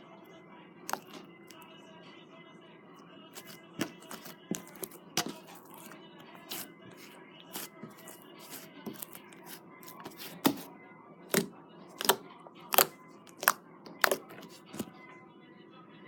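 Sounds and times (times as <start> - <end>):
slime squeezed wet pops: 11.3 - 14.8.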